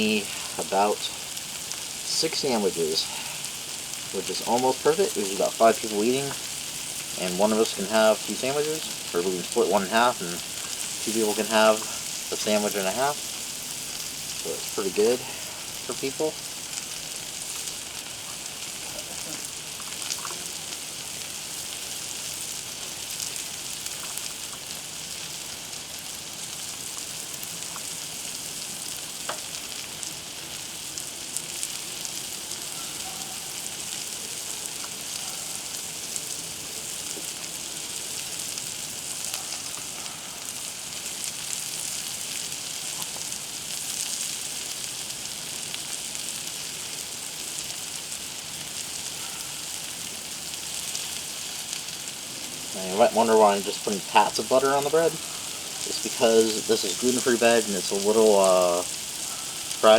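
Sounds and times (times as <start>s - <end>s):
food sizzling on griddle: 0.0s - 59.9s
small pops and crackles: 10.4s - 52.1s.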